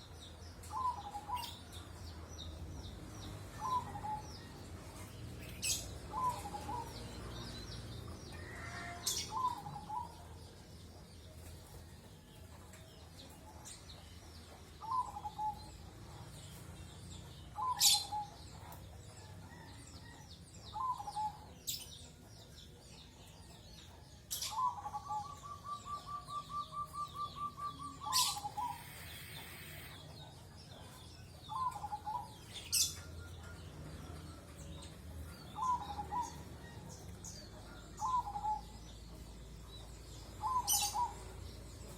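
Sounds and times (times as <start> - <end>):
birds calling hooked notes: 26.9 - 30.1
sharp high bird chirps: 28.1 - 30.0.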